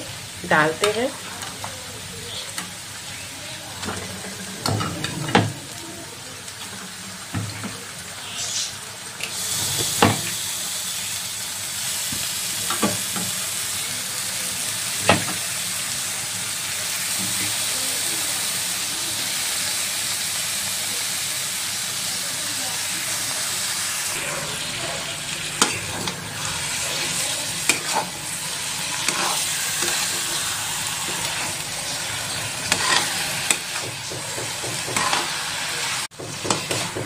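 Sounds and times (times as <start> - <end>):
chicken sizzling in a pan: 0.0 - 37.0
metal spatula knocking a pan: 32.7 - 35.2, 36.1 - 37.0.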